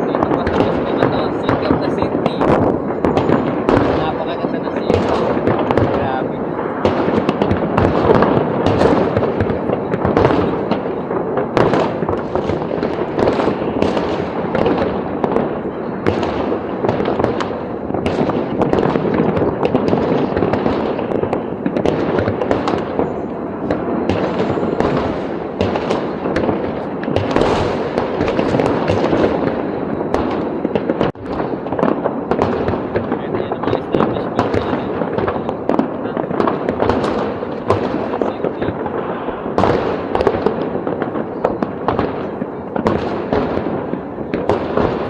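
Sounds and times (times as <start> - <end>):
fireworks bangs and crackles: 0.0 - 45.0.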